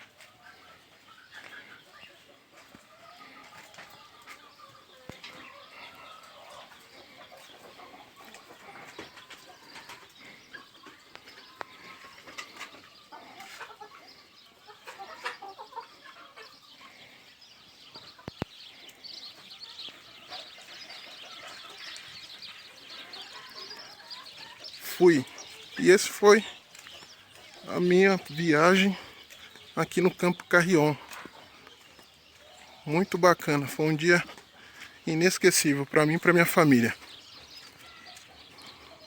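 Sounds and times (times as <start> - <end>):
birds chirping: 0.0 - 39.0
chickens clucking: 0.0 - 39.0.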